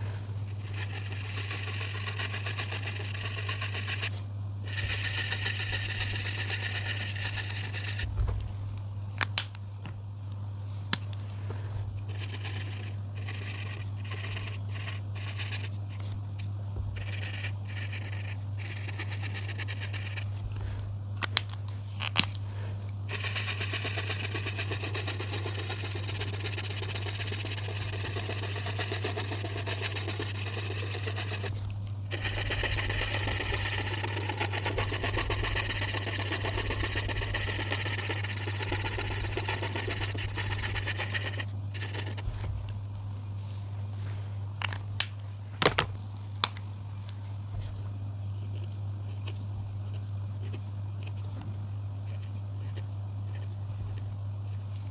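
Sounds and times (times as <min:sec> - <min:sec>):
colouring tool scratching on paper: 0:00.0 - 0:08.4, 0:11.5 - 0:20.9, 0:22.6 - 0:42.6
steady low hum: 0:00.0 - 0:54.9.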